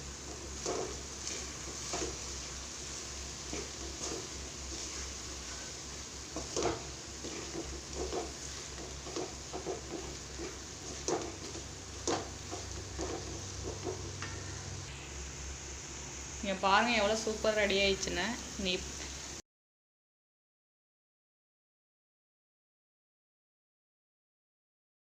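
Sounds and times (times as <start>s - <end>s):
spoon stirring and scraping pan: 0.0s - 14.9s
food sizzling in a pan: 0.0s - 19.4s.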